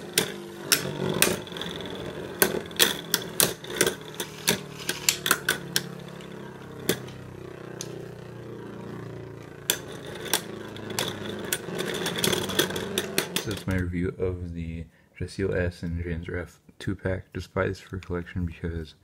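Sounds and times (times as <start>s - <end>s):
plastic spinning tops clacking: 0.0s - 13.8s
whir of spinning tops: 0.0s - 13.8s.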